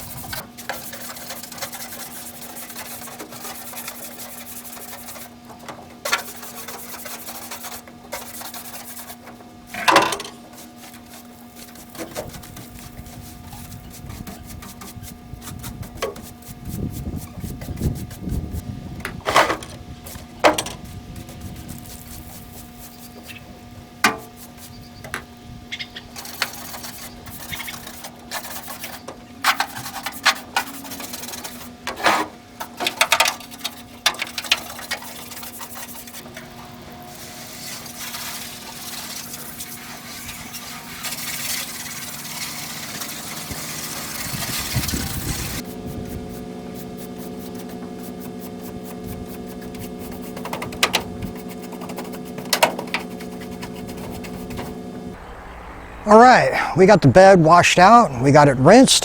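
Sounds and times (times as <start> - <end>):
steady hum: 45.5 - 59.0.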